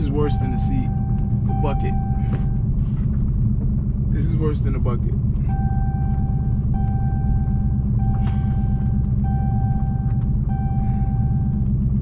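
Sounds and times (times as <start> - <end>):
electronic warning chime: 0.0 - 2.3
car engine low rumble: 0.0 - 12.0.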